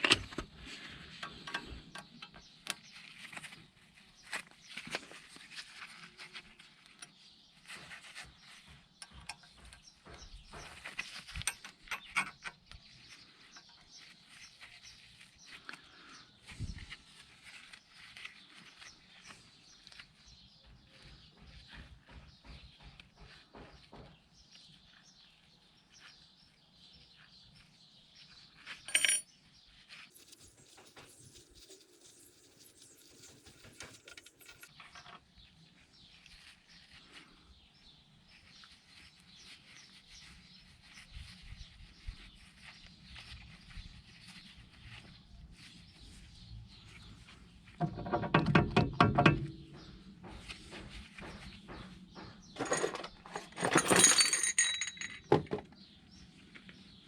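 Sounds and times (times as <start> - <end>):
metal tools scraping: 28.8 - 29.3, 30.1 - 35.1, 52.6 - 55.5.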